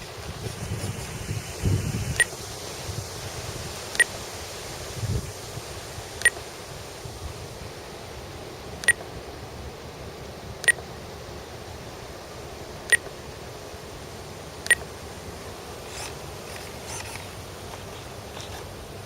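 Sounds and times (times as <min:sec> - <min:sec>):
wind noise: 0:00.0 - 0:07.9.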